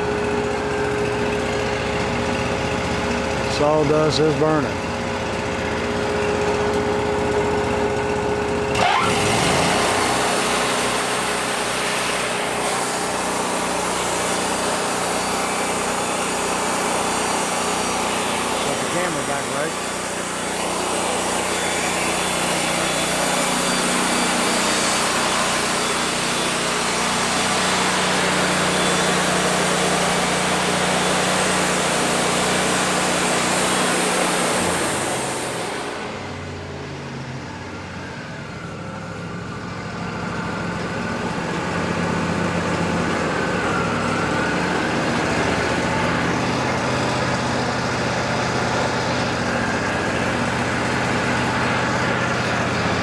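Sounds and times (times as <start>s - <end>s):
sawmill engine running: 0.0s - 53.0s
band saw blade cutting wood: 8.8s - 36.1s.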